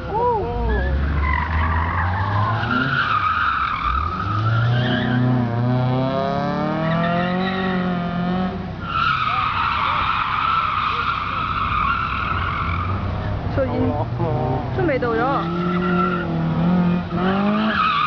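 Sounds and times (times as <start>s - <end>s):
tyres squealing: 0.0s - 5.6s, 8.8s - 13.5s, 14.8s - 18.0s
car engine revving: 0.1s - 18.0s.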